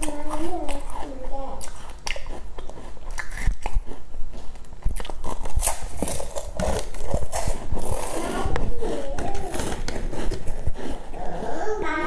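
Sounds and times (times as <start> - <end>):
sticky wet chewing: 0.0 - 11.6
mouth clicks and smacks: 1.6 - 11.0.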